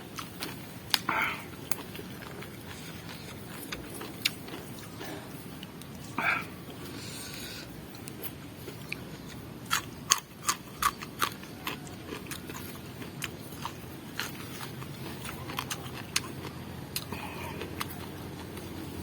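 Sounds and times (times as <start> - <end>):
crunching raw vegetables: 0.1 - 19.0.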